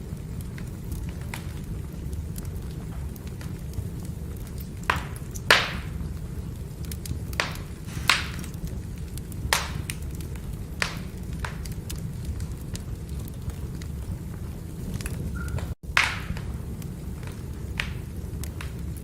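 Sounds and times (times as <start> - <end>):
firewood crackling: 0.0 - 19.0
steady low rumble: 6.3 - 15.2.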